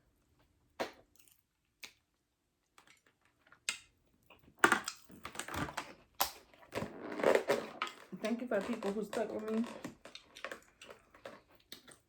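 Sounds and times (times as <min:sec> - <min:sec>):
wet chewing mouth smacks: 0:10.1 - 0:12.0.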